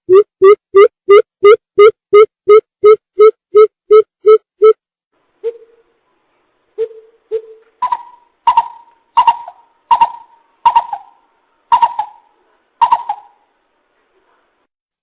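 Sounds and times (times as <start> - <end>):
bird hooting call: 6.8 - 13.4.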